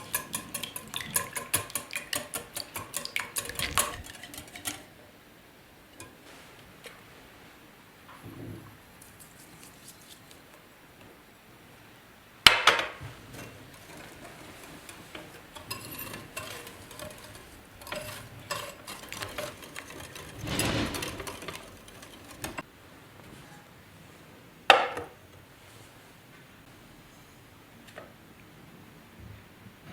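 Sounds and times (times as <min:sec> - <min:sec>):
utensils scraping: 0:00.0 - 0:05.0, 0:13.2 - 0:22.7
dishes clinking: 0:00.0 - 0:05.1, 0:05.9 - 0:07.1, 0:12.5 - 0:22.7.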